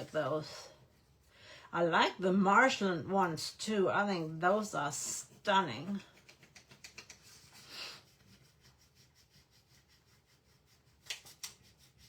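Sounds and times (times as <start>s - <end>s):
rubbing on a wooden cutting board: 6.0s - 12.0s.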